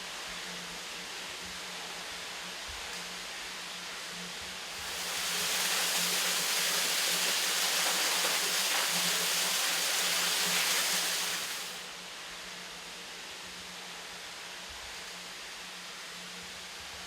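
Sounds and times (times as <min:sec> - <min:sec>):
rushing water: 0:04.7 - 0:11.9.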